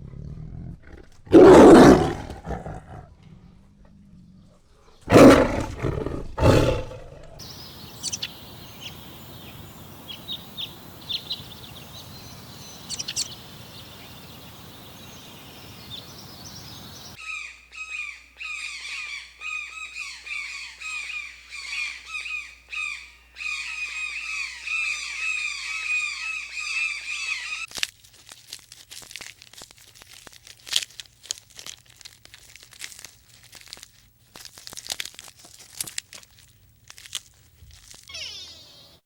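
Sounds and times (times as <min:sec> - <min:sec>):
small birds chirping: 0:01.3 - 0:02.6, 0:05.0 - 0:27.7, 0:38.1 - 0:39.0
crackling and rustling clicks: 0:27.7 - 0:38.1.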